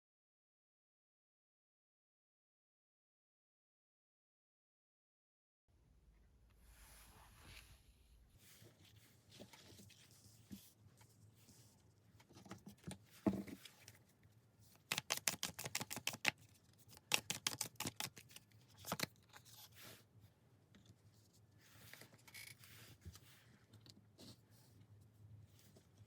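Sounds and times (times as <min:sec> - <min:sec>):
cards being shuffled: 0:14.7 - 0:19.7.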